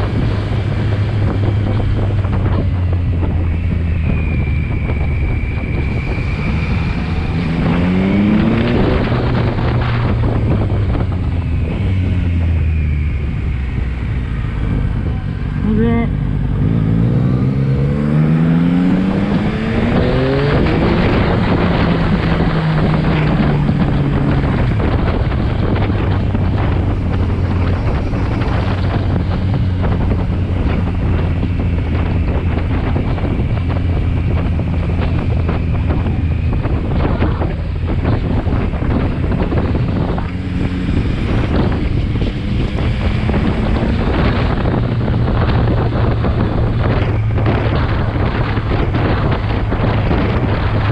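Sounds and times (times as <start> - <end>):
motorcycle engine accelerating: 0.0 - 50.9
wind noise on microphone: 0.0 - 50.9.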